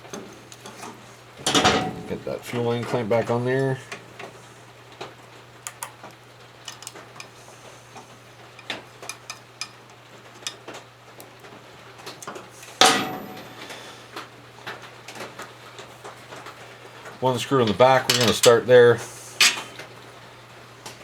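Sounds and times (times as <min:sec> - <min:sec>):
low electrical hum: 0:00.0 - 0:21.0
metal tools clicking and clinking: 0:00.6 - 0:02.2, 0:06.7 - 0:07.4, 0:08.6 - 0:10.6, 0:17.6 - 0:18.7, 0:19.4 - 0:19.8
ringing metal clank: 0:01.5 - 0:02.2, 0:12.8 - 0:13.6, 0:19.4 - 0:19.8.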